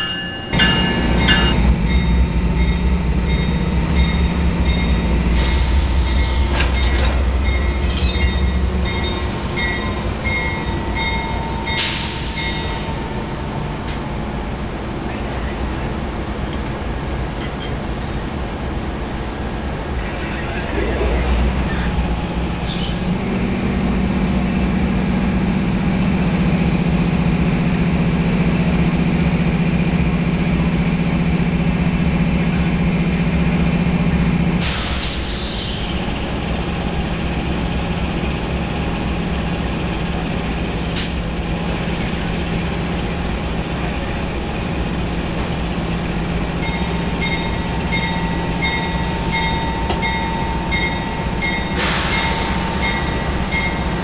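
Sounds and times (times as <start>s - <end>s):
high ringing: 0.0s - 13.4s
locomotive idling hum: 0.0s - 54.0s.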